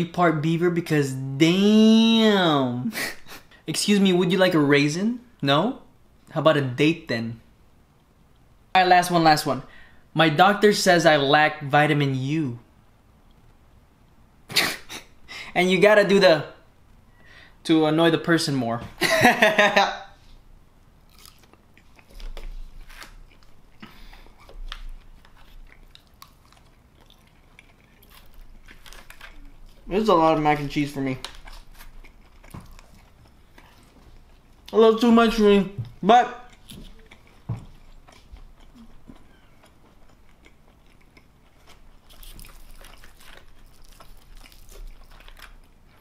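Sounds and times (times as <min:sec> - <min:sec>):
chewing with wet mouth smacks: 0:23.2 - 0:29.8, 0:31.3 - 0:34.8, 0:36.5 - 0:46.0.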